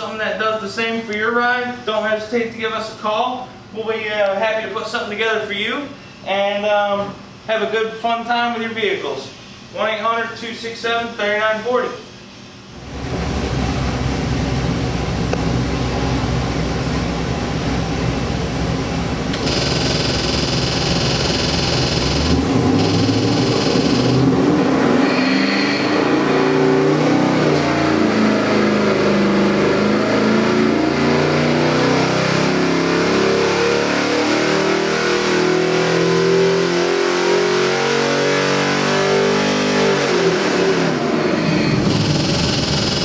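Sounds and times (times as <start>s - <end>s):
engine revving on a dyno: 12.7s - 43.0s.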